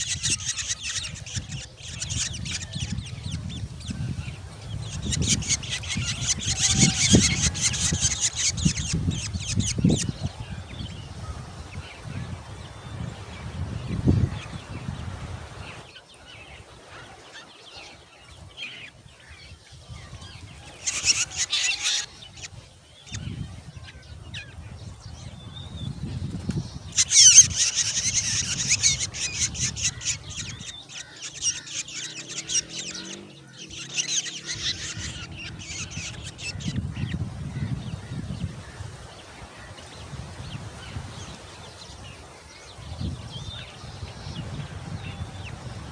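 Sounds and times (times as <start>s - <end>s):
nestlings begging calls: 0.0s - 45.9s.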